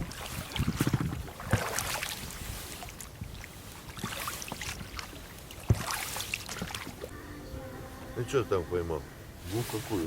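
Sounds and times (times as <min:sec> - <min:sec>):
water splashing against boat: 0:00.0 - 0:07.1.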